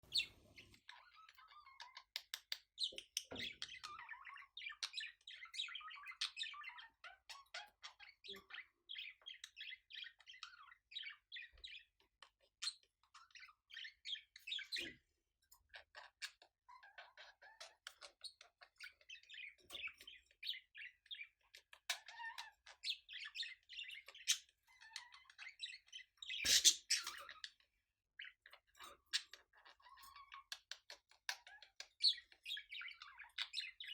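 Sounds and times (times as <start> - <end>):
budgerigars warbling: 22.0 - 27.5.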